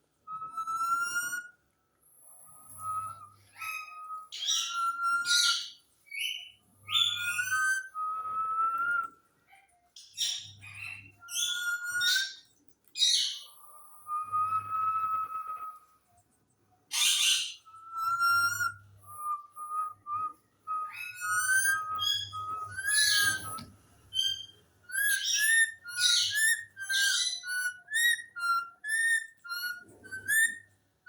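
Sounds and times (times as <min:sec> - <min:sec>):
parrot whistling: 0:00.3 - 0:01.5, 0:02.6 - 0:09.1, 0:10.2 - 0:12.4, 0:13.0 - 0:15.8, 0:16.9 - 0:30.7
parrot chirps and squawks: 0:10.0 - 0:13.5, 0:16.9 - 0:18.7, 0:21.1 - 0:30.6.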